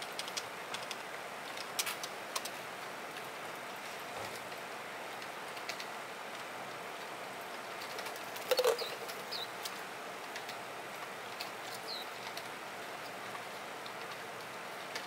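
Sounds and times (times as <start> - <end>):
bird thin falling chirps: 8.5 - 9.5.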